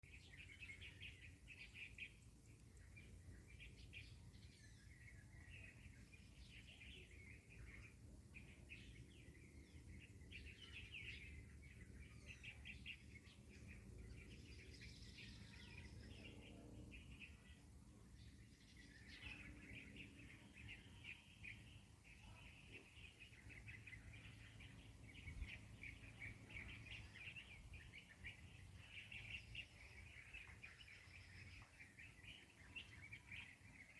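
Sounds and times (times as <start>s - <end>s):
small birds chirping: 0.0s - 33.9s.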